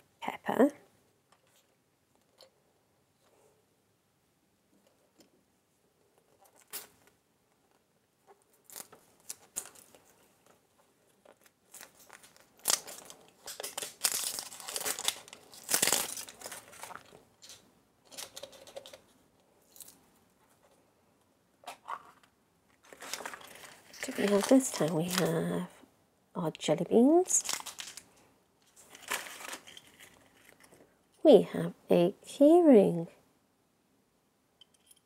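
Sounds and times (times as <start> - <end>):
packaging crinkling and tearing: 8.5 - 10.6, 11.2 - 19.0, 22.8 - 25.5, 27.3 - 30.8.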